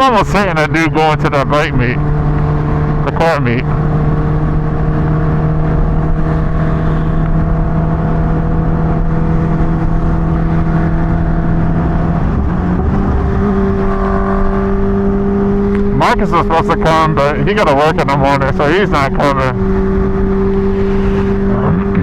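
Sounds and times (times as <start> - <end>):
motorcycle engine running: 0.0 - 22.0
wind rumble on microphone: 2.0 - 15.9.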